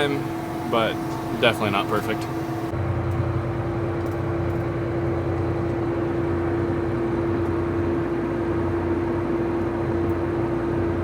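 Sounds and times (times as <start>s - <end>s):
steady hum: 0.0s - 3.0s
tractor engine running: 0.0s - 4.8s.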